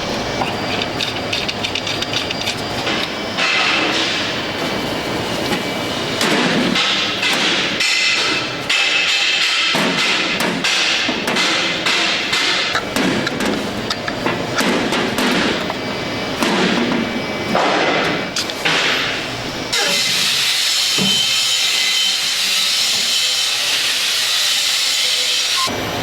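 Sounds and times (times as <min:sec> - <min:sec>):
hammer strikes on metal: 0:06.2 - 0:13.6.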